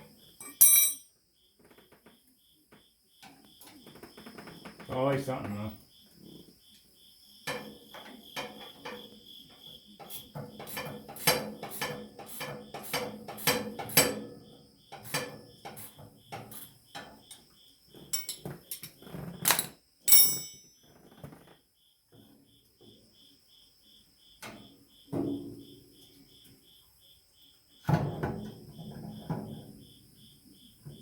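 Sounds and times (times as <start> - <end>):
crickets chirping: 0.0 - 31.0
hand tools clinking on metal: 0.4 - 1.1, 18.2 - 20.8
ringing metal clang: 0.4 - 1.1, 18.2 - 18.4, 20.1 - 20.8.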